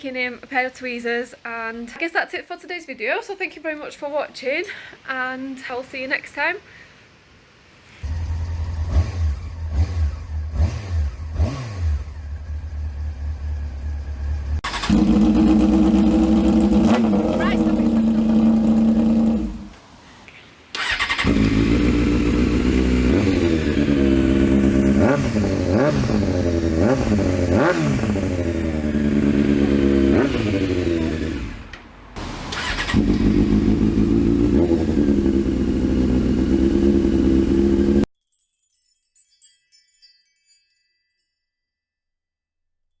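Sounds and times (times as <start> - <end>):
motorcycle engine revving and idling: 8.1 - 19.8, 20.8 - 38.1.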